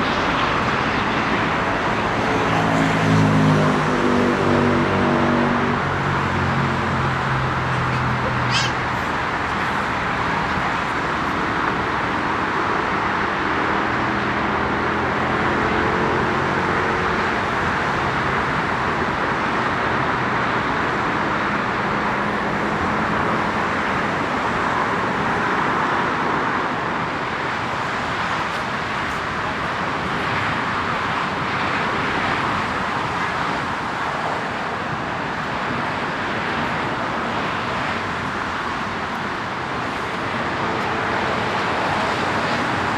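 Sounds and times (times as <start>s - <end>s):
jet engines whining: 5.8s - 12.4s.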